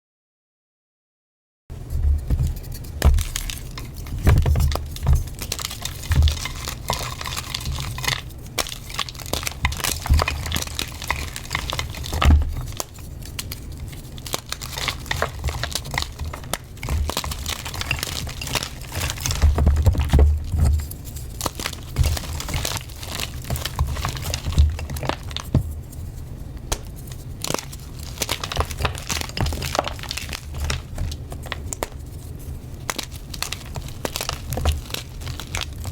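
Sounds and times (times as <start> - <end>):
dull thumps: 1.7 - 6.8, 18.8 - 20.9
chalk crushing and crumbling: 1.8 - 35.9.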